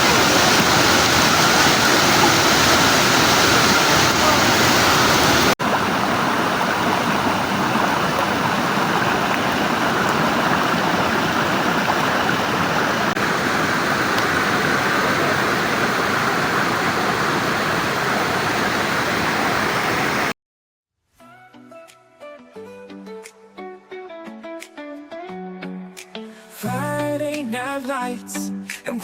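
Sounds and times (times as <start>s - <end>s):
rushing flowing water: 0.0s - 20.3s.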